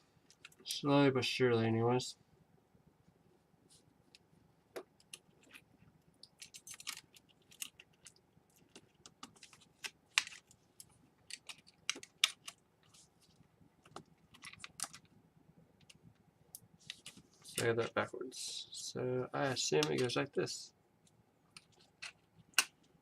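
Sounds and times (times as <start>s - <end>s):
laptop parts clicking and tapping: 6.2s - 12.6s, 13.8s - 15.1s.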